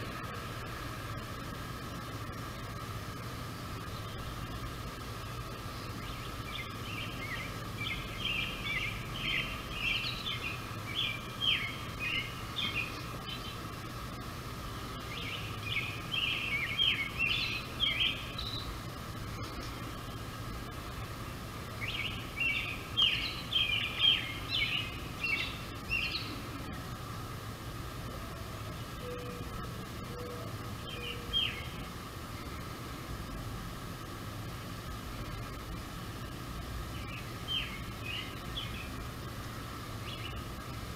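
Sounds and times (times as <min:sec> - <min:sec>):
songbird singing: 0:00.0 - 0:40.9
steady background hum: 0:00.0 - 0:40.9.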